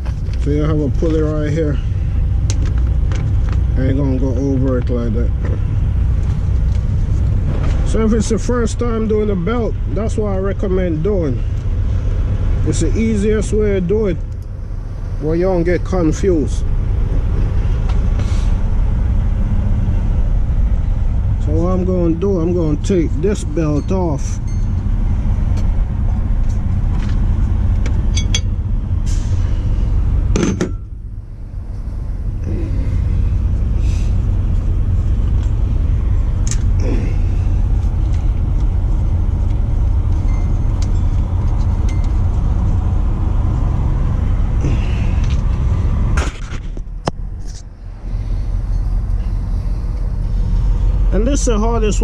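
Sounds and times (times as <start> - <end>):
low rumble: 0.0 - 52.0
clicks and knocks of belt removal: 2.4 - 3.7.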